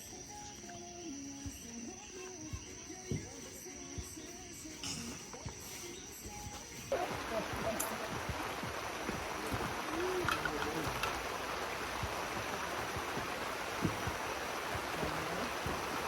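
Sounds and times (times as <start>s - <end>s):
faint voices: 5.0s - 16.0s
flowing water rushing: 6.8s - 16.0s.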